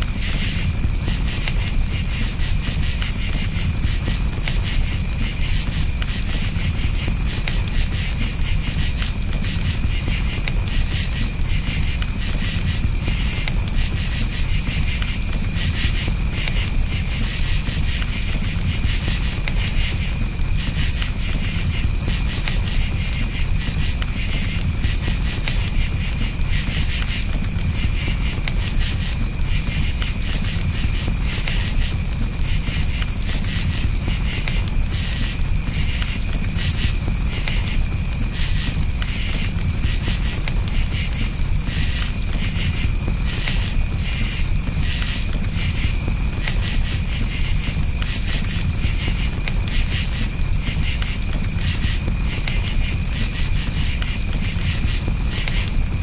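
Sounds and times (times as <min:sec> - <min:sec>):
campfire crackling: 0:00.0 - 0:56.0
crickets chirping: 0:00.0 - 0:56.0.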